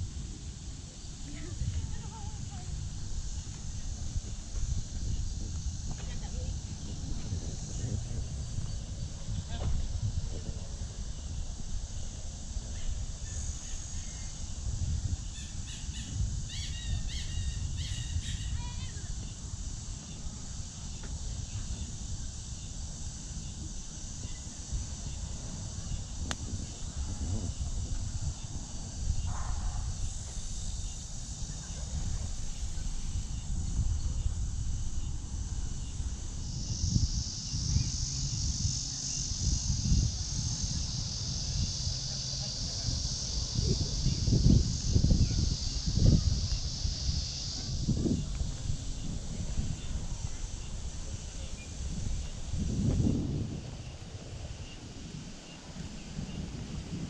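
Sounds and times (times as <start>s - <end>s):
cicadas shrilling: 0.0s - 57.0s
steady high hiss: 0.0s - 57.0s
low rumble: 24.8s - 36.4s.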